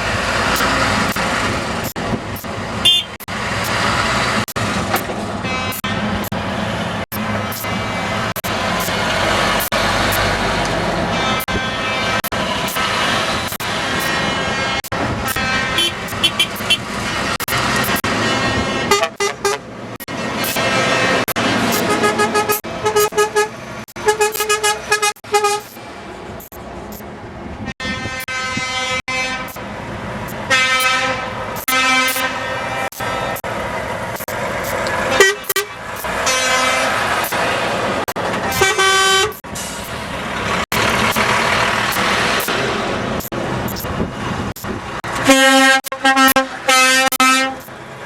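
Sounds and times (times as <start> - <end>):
passing trucks: 0.0 - 48.0
truck air horns honking: 2.8 - 3.3, 5.2 - 6.3, 9.2 - 17.3, 18.1 - 25.8, 27.6 - 29.7, 30.3 - 33.5, 34.9 - 37.4, 38.4 - 40.1, 45.1 - 47.7.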